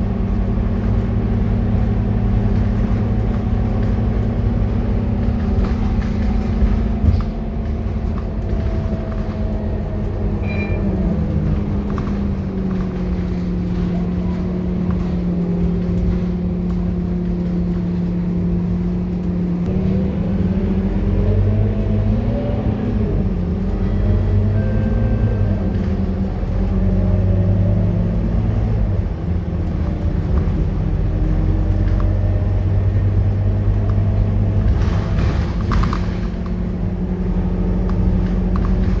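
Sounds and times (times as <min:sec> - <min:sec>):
bus diesel engine running: 0:00.0 - 0:39.0.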